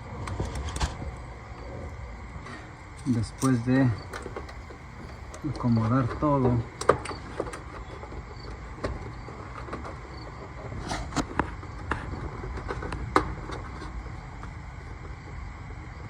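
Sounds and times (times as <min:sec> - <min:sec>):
steady low rumble: 0:00.0 - 0:16.0
clicks of wires being handled: 0:02.9 - 0:10.0.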